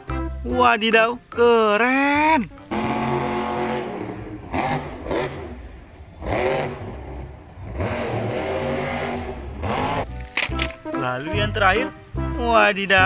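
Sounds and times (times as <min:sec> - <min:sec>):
vehicle engine revving: 0:02.5 - 0:12.4.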